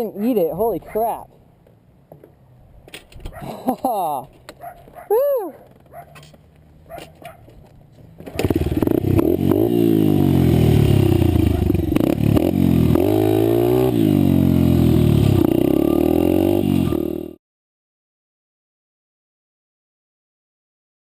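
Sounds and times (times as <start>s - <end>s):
dirt bike engine revving: 8.4s - 17.4s.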